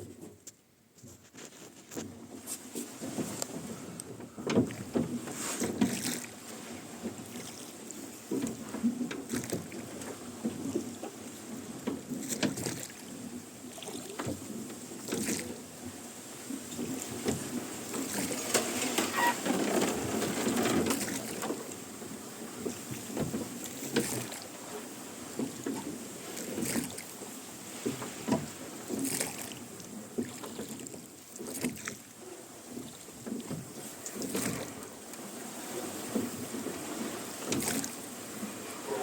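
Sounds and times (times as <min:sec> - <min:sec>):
oars splashing in water: 0:01.0 - 0:39.0
oarlocks creaking: 0:18.5 - 0:20.8, 0:38.8 - 0:39.0.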